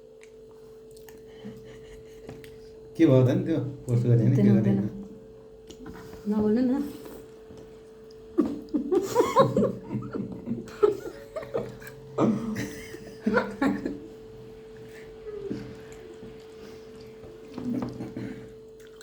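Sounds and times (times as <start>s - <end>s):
steady hum: 0.0s - 19.0s
people laughing: 8.4s - 14.2s.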